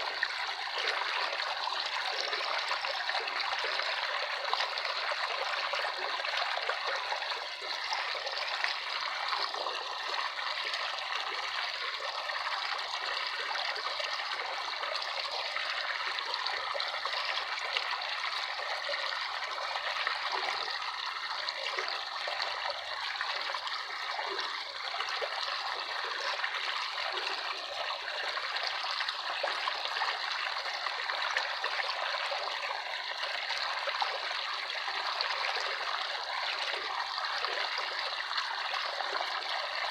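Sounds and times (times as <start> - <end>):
water trickling: 0.0 - 39.9.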